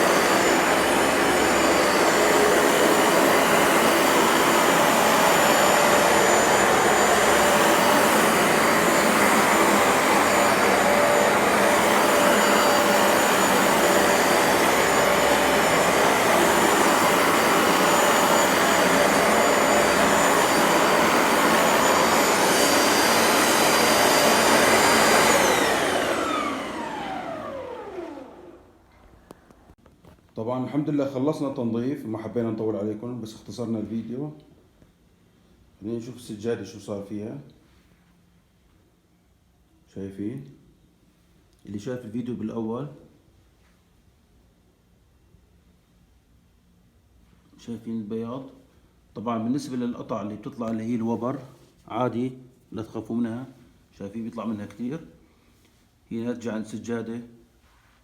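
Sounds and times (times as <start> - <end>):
motor winding down: 0.0 - 28.6
carpet cleaner running: 0.0 - 29.4.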